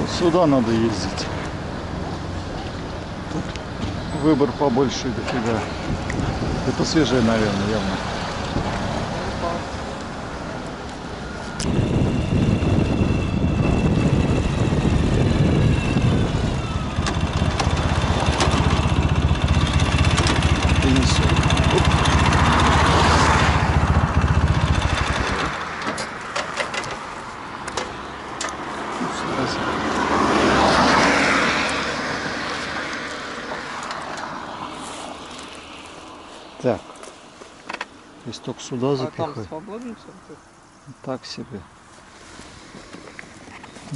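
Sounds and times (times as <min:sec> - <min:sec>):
vehicle passing by: 0:11.6 - 0:26.0, 0:27.2 - 0:36.8
engine pulsing rumble: 0:11.6 - 0:26.1.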